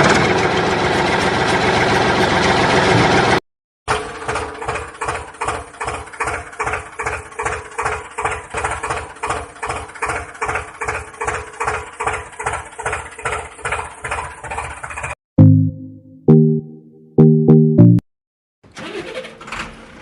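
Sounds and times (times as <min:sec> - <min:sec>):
engine chugging at idle: 0:00.0 - 0:15.2.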